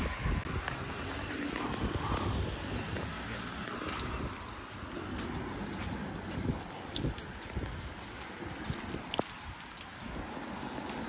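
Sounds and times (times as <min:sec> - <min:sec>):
rain on wet pavement: 0:00.0 - 0:11.0
footsteps on wet paving: 0:00.4 - 0:11.0
drops ticking: 0:00.5 - 0:11.0.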